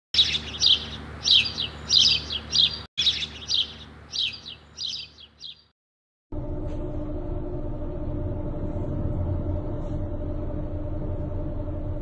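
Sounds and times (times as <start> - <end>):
birds chirping: 0.2 - 5.8.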